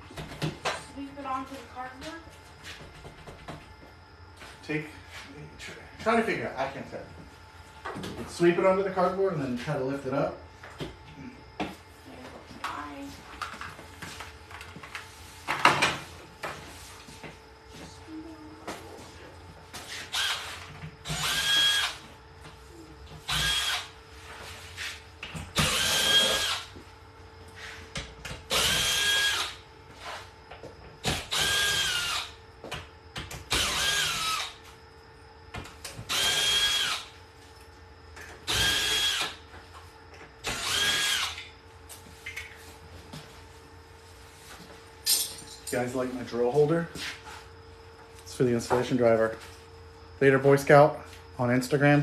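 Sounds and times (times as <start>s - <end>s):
cordless drill whining: 19.9s - 22.0s, 23.3s - 23.9s, 25.6s - 26.7s, 28.5s - 29.6s, 31.1s - 32.3s, 33.5s - 34.6s, 36.1s - 37.1s, 38.5s - 39.4s, 40.4s - 41.5s.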